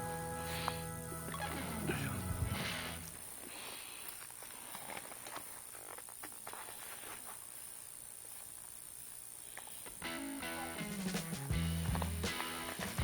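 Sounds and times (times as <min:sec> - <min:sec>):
high-pitched whine: 0:00.0 - 0:03.5.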